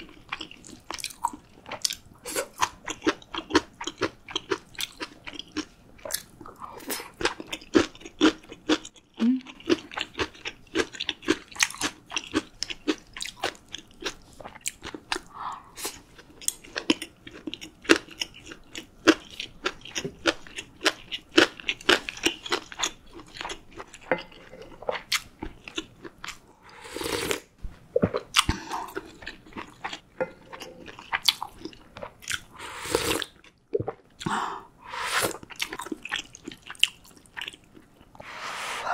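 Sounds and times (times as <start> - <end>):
food chewing with crunches: 0.0 - 34.3, 35.3 - 38.2
wet mouth sounds: 9.2 - 9.6
slurping: 32.5 - 33.3, 34.8 - 35.8.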